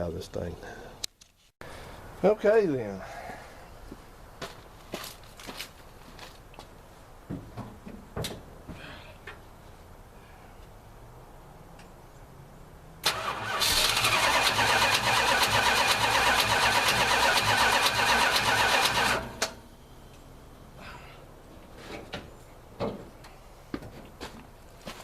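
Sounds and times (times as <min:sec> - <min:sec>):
car starter cranking engine: 0:13.0 - 0:19.6.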